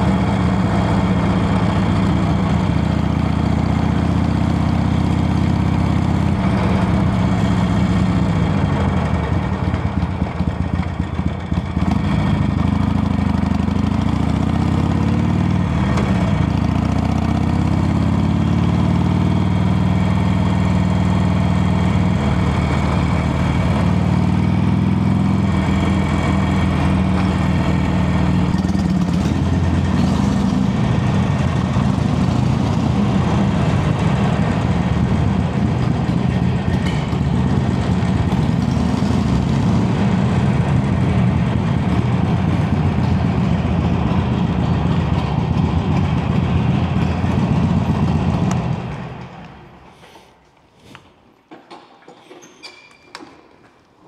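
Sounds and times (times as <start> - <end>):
motorcycle engine revving: 0.0 - 49.8.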